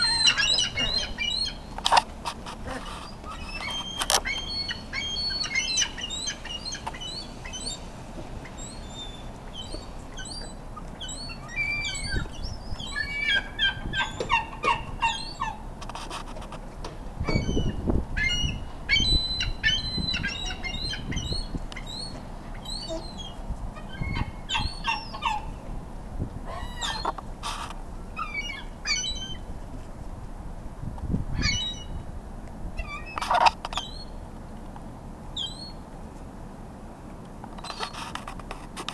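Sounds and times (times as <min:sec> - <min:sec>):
gulls calling sharply: 0:00.0 - 0:02.0, 0:02.6 - 0:15.7
low rumbles: 0:00.0 - 0:38.8.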